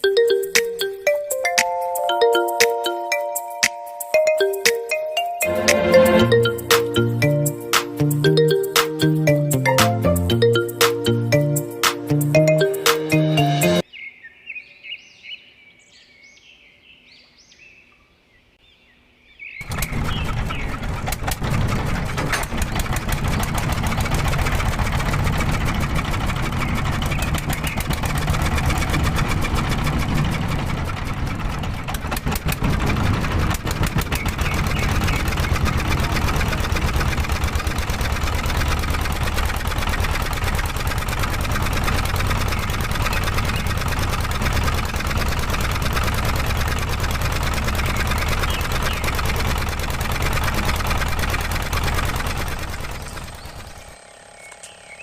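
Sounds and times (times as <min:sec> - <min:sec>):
diesel engine starting and running: 0:05.4 - 0:13.8, 0:19.6 - 0:55.0.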